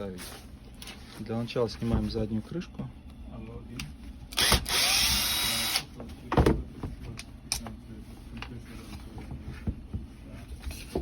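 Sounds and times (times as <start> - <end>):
electric screwdriver spinning: 4.4 - 5.8.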